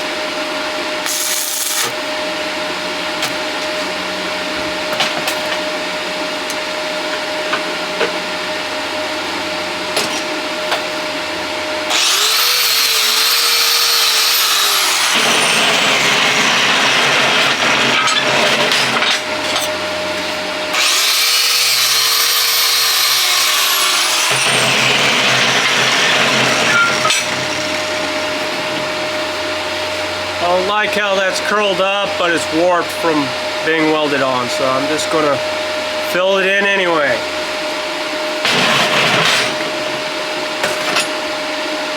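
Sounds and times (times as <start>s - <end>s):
angle grinder whining on steel: 1.0s - 2.7s, 11.3s - 30.8s.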